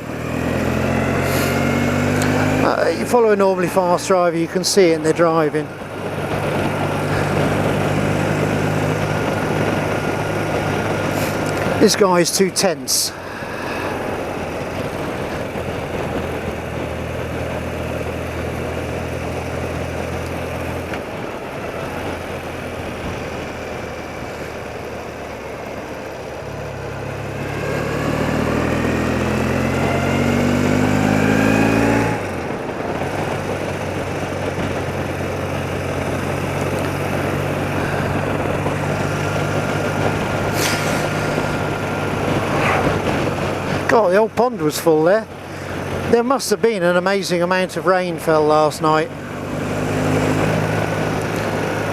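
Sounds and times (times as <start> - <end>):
motorcycle engine running: 0.0 - 51.9
wind rush: 1.2 - 17.9, 27.2 - 44.3.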